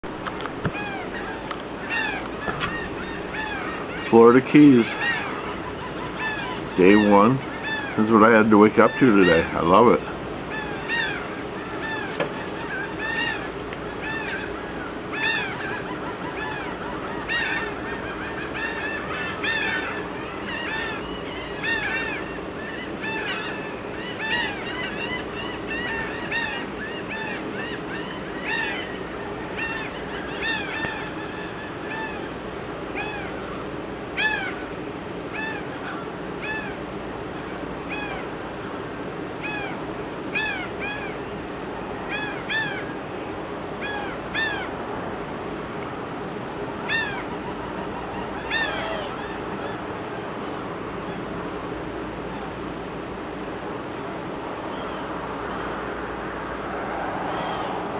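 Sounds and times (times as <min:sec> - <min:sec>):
birds calling: 0:00.0 - 0:57.9
steady low hum: 0:00.0 - 0:57.9.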